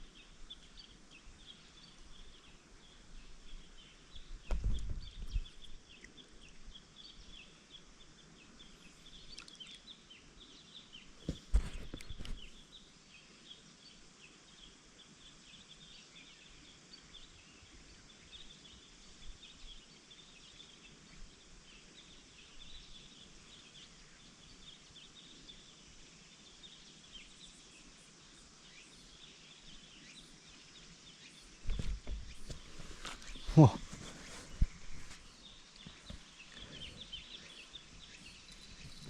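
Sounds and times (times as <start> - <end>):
small high chirps: 9.2 - 10.0.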